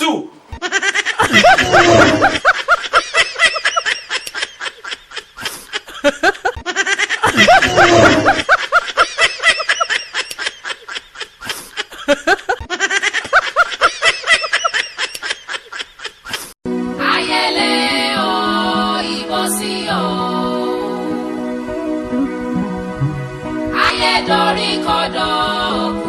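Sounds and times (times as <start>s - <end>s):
snickering laughter: 0.5s - 16.6s.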